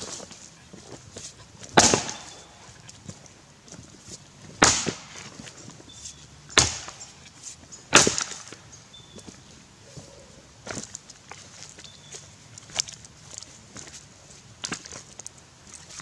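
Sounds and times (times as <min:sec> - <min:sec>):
axe chopping into log: 0:01.7 - 0:02.6, 0:04.6 - 0:05.5, 0:06.5 - 0:07.0, 0:07.9 - 0:08.6.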